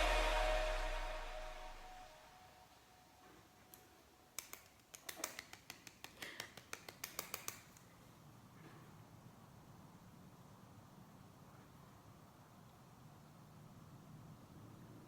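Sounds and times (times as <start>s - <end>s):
light sharp clicks: 3.7s - 7.9s.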